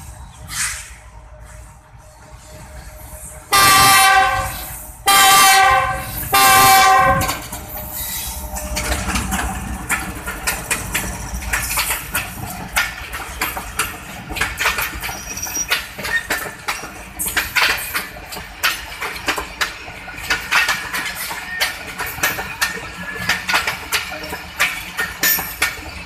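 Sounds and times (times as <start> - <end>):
locomotive engine rumbling: 0.0 - 26.0
multi-tone train horn blasts: 3.4 - 7.5
wheels clacking over rail joints: 3.5 - 26.0.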